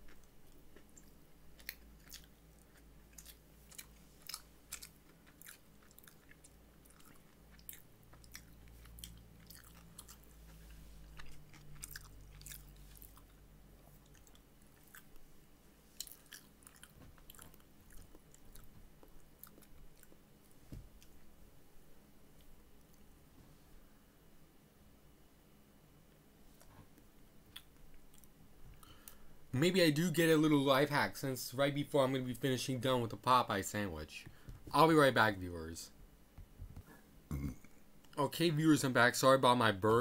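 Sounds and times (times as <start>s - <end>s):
close-up chewing: 0.0s - 21.2s, 27.5s - 29.2s
low steady hum: 0.0s - 40.0s.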